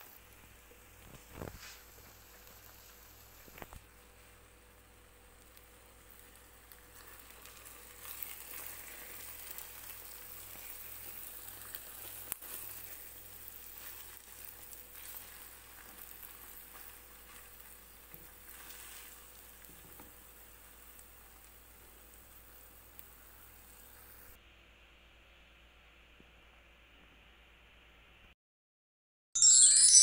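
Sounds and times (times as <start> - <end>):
omelette sizzling in frying pan: 0.0 - 24.4.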